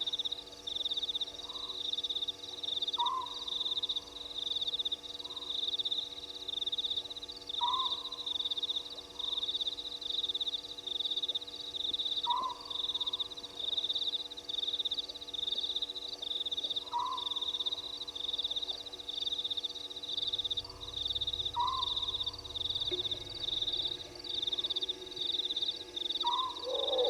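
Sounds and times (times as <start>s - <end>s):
high fast-pulsing trill: 20.1s - 26.6s
lower frog call rising and falling: 20.3s - 27.0s.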